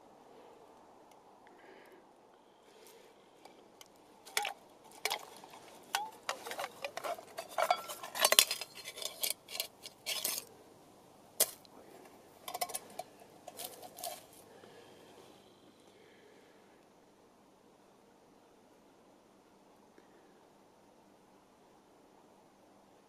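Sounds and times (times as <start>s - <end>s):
metal cookware clinking: 4.3s - 10.5s, 12.5s - 14.3s.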